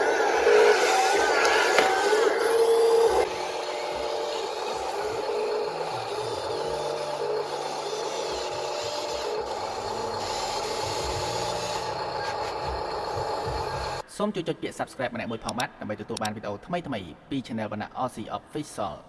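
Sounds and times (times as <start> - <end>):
small electric motors whining: 0.0 - 14.0
steady higher whine: 0.0 - 14.0
rattling clatter of gears: 3.2 - 14.0.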